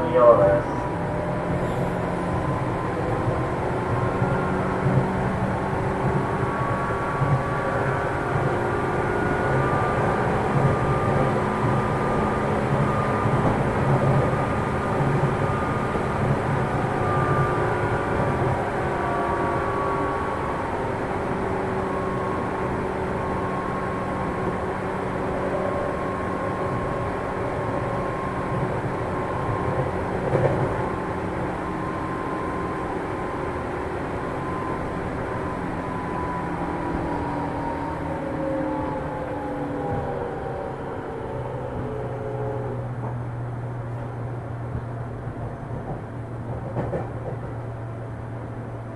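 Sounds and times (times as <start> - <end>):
train wheels rumbling on rail: 0.0 - 48.9.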